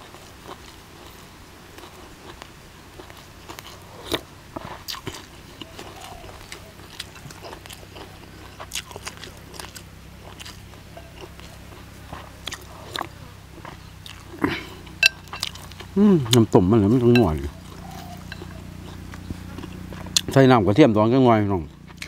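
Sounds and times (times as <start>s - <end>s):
person biting and chewing crunchily: 1.8s - 20.4s.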